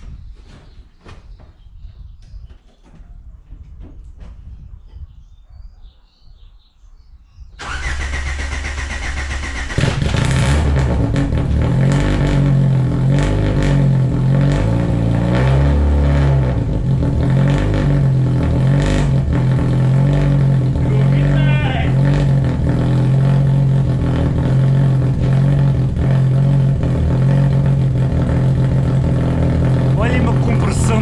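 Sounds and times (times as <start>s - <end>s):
car engine fast idle: 7.6s - 10.6s.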